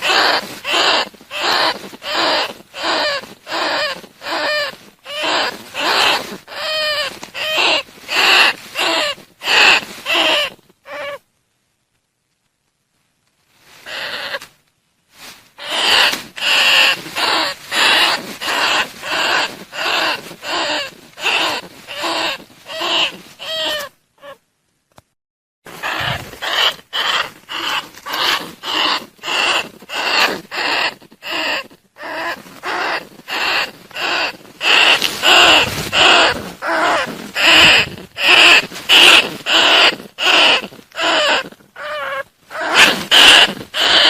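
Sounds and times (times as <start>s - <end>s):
rat squealing calls: 0.0s - 11.2s, 13.9s - 14.5s, 15.6s - 24.4s, 25.7s - 44.0s.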